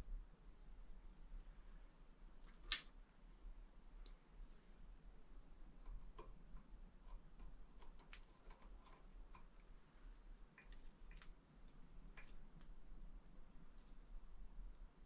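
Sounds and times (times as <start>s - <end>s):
small clicks and ticks: 4.0s - 4.2s, 5.8s - 14.0s.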